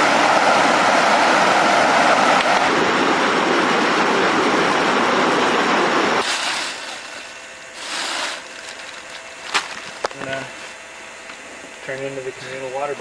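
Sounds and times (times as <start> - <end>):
loud steady rushing noise: 0.0 - 9.2.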